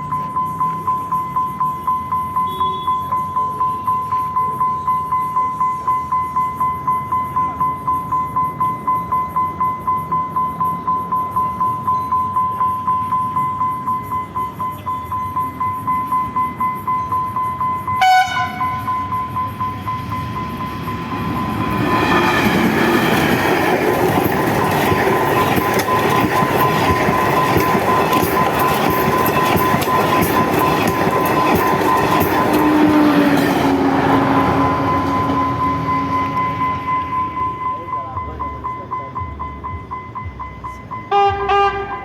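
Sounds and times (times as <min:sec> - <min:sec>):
train wheels clattering on rails: 0:14.5 - 0:41.6
train horn blasts: 0:18.0 - 0:18.9, 0:32.4 - 0:36.6, 0:41.1 - 0:42.0.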